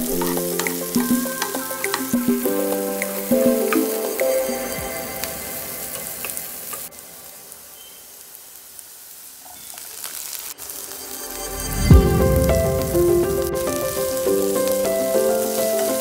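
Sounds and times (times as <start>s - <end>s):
vegetables sizzling in hot oil: 5.2s - 16.0s.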